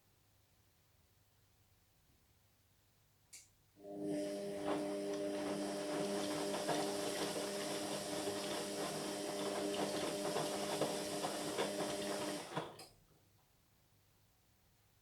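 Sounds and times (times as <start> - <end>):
washing machine running: 3.8 - 12.9.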